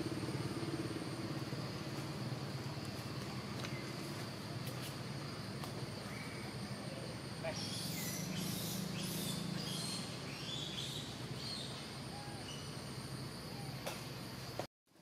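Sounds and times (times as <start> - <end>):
high insect drone: 0.0 - 14.7
small birds chirping: 6.0 - 14.5.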